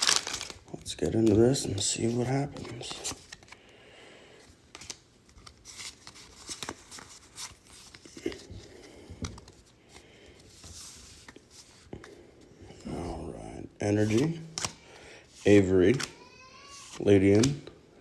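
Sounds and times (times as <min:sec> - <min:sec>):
foil wrapper tearing and crinkling: 0:00.0 - 0:00.7.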